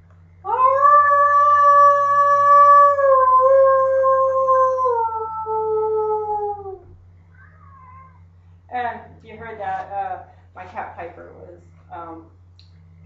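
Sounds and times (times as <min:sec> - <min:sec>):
woman imitating wolf howl: 0:00.5 - 0:06.9.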